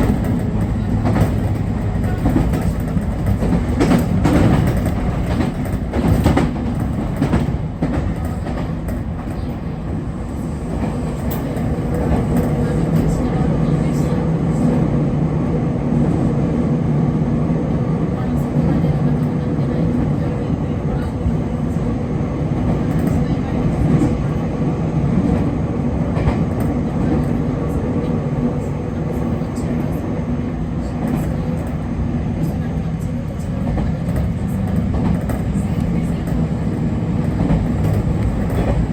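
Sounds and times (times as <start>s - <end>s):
clacks over rail joints: 0.0s - 9.6s, 33.4s - 38.9s
train wheels rumbling on rail: 0.0s - 38.9s.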